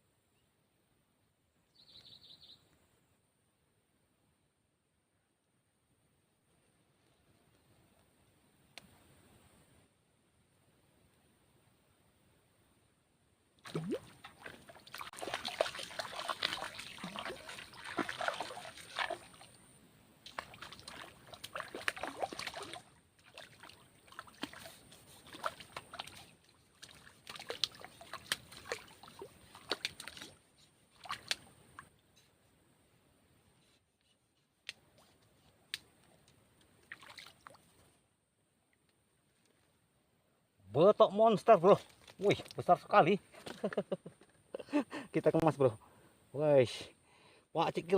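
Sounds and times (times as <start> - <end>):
fish splashing in water: 13.6 - 19.6, 20.3 - 30.3.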